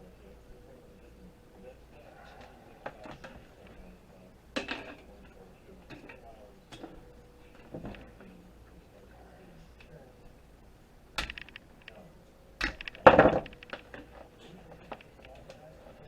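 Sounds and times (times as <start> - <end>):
small hard parts clicking and clattering: 11.2 - 12.0, 12.6 - 16.0.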